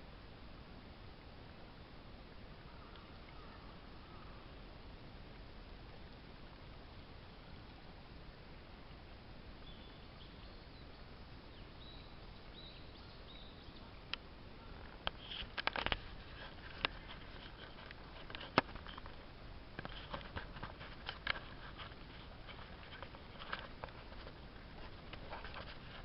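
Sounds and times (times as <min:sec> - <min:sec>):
steady low hiss: 0:00.0 - 0:26.0.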